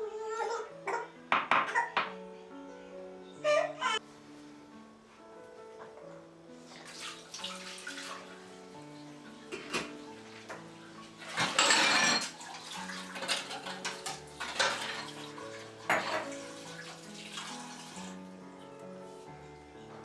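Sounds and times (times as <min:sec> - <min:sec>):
soft background music: 0:00.0 - 0:20.0
dishes clinking and knocking: 0:01.3 - 0:02.2, 0:09.5 - 0:10.6, 0:11.2 - 0:16.6
running water gush: 0:06.6 - 0:18.3.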